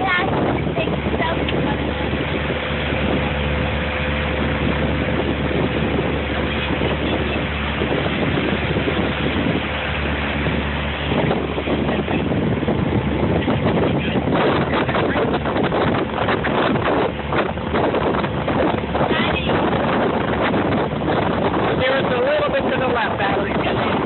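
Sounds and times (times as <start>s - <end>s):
boat engine hum: 0.0s - 24.0s
water rushing past hull: 0.0s - 24.0s
wind buffeting microphone: 0.0s - 24.0s.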